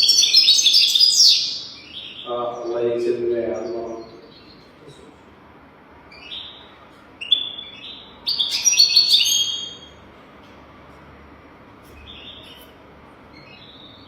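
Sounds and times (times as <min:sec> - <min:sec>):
bird twittering song: 0:00.0 - 0:05.2, 0:06.1 - 0:10.0, 0:11.9 - 0:14.0.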